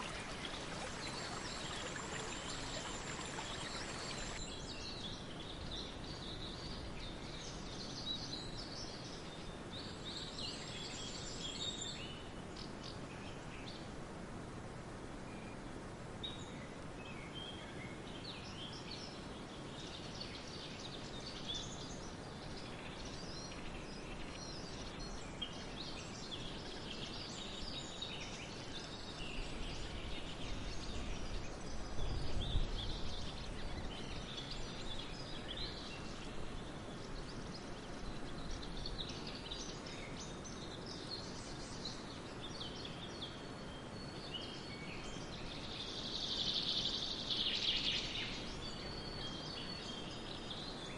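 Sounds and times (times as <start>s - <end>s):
outdoor background hiss: 0.0s - 50.9s
songbirds chirping: 0.0s - 50.9s.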